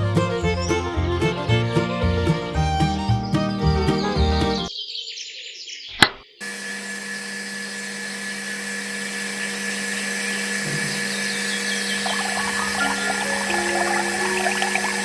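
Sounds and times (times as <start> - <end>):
sharp click: 5.9 - 6.2
small electric motor humming: 6.7 - 11.5.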